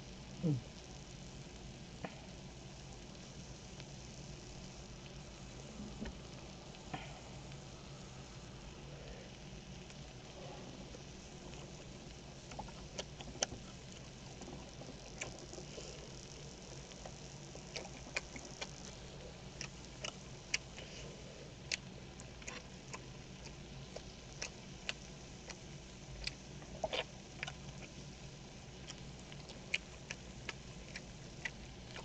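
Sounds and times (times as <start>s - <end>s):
low steady hum: 0.0s - 32.0s
person chewing with wet mouth clicks: 11.5s - 15.7s, 17.0s - 20.9s, 21.6s - 28.0s, 28.8s - 32.0s.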